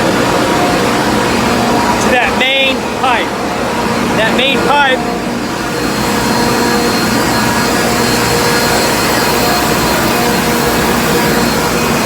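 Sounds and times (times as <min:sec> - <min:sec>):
refrigeration compressors running: 0:00.0 - 0:12.0.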